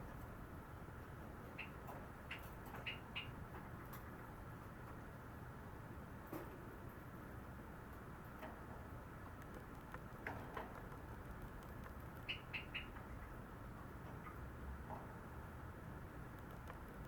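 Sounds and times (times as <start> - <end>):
high bird chirps: 1.6 - 3.4, 12.2 - 13.3
sparrow clicks: 9.4 - 13.2.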